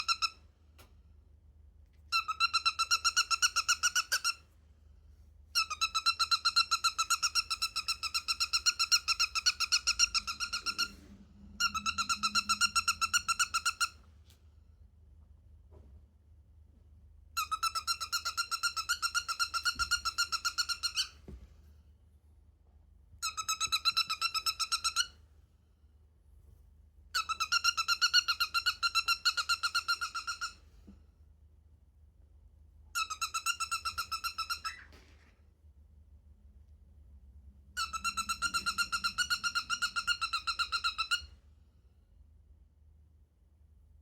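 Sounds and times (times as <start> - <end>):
cockatiel squeaky calls: 0.0 - 0.4, 2.1 - 4.4, 5.6 - 11.0, 11.6 - 14.0, 17.4 - 21.3, 23.2 - 25.2, 27.2 - 30.6, 33.0 - 35.2, 37.8 - 41.4.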